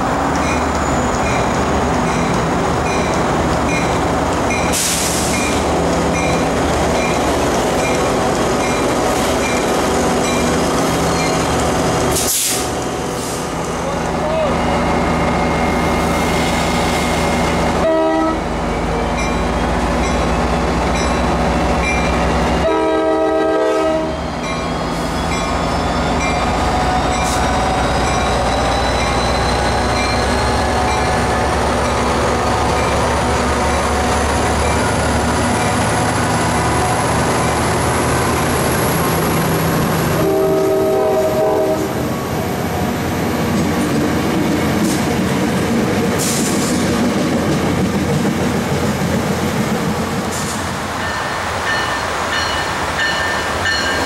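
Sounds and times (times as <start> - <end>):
train wheels rolling on rails: 0.0 - 54.0
train horn blasts: 17.8 - 18.5, 22.6 - 24.1, 40.2 - 42.0.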